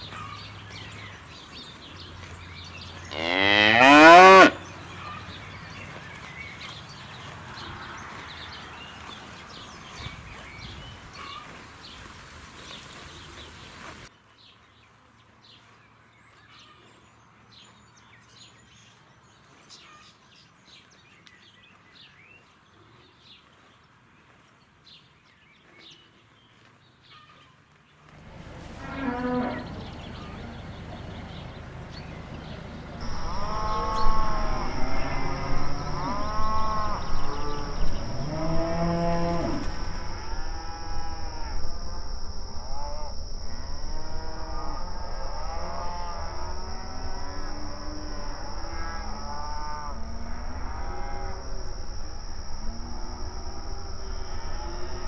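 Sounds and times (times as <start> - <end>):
cow mooing: 3.1 - 4.6, 28.2 - 30.6, 33.0 - 41.7, 42.6 - 55.0.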